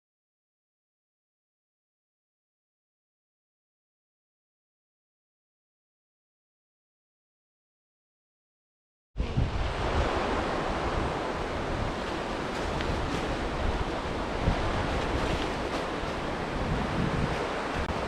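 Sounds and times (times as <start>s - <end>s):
wind buffeting microphone: 9.2s - 18.0s
river water rushing: 9.3s - 18.0s.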